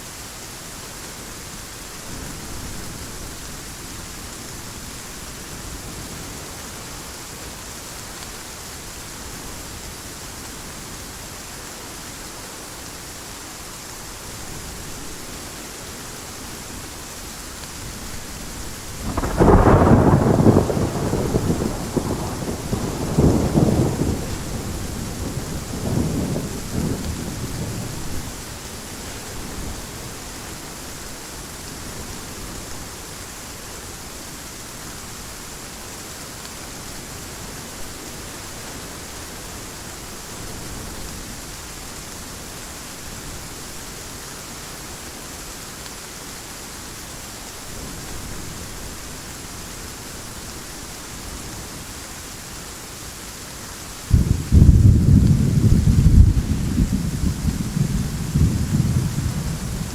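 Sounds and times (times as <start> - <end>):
heavy rain hissing: 0.0 - 59.9
low thunder rumble: 18.9 - 28.3, 54.1 - 59.9
loud thunder clap: 54.1 - 59.9.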